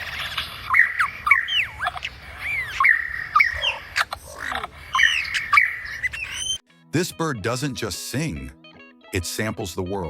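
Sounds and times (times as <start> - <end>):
lyrebird whistling song: 0.0 - 6.6.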